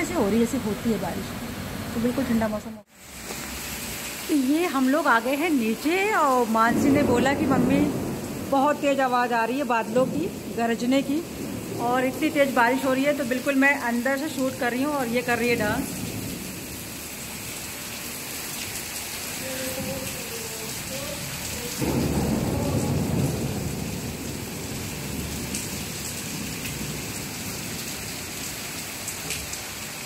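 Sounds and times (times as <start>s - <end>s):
heavy rain on pavement: 0.0s - 30.0s
thunder rumble: 6.4s - 16.9s, 19.4s - 28.3s.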